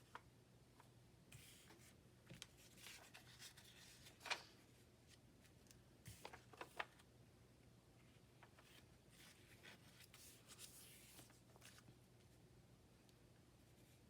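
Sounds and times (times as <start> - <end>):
paper rustling and tapping: 6.1 - 7.0.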